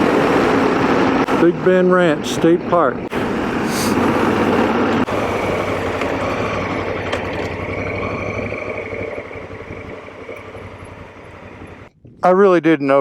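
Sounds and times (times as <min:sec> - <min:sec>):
road noise: 0:00.0 - 0:12.0
motorcycle engine running: 0:03.1 - 0:11.9.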